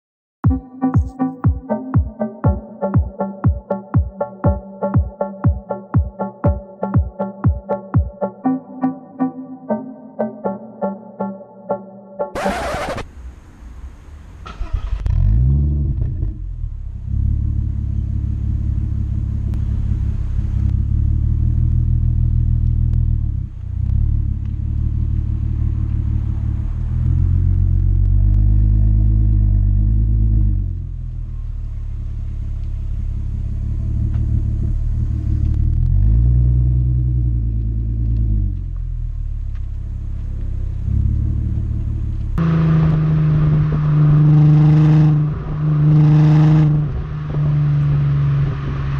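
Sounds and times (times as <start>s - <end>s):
car engine idling and revving: 12.3s - 48.9s.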